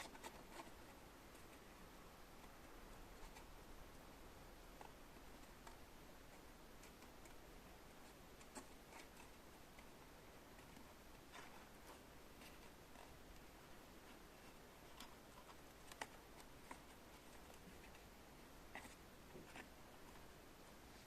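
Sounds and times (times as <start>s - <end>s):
faint room hiss: 0.0s - 21.0s.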